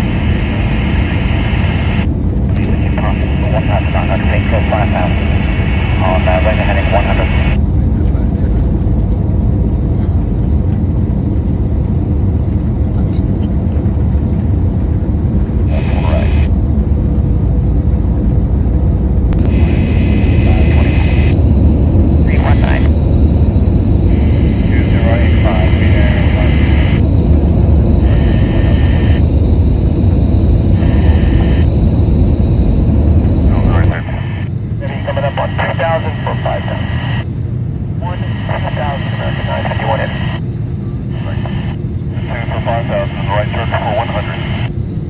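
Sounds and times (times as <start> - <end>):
airplane cabin rumble: 0.0 - 45.0
radio hiss bursts: 0.8 - 7.6, 15.7 - 16.5, 24.2 - 27.0, 33.5 - 37.2, 38.0 - 40.4, 41.1 - 44.7.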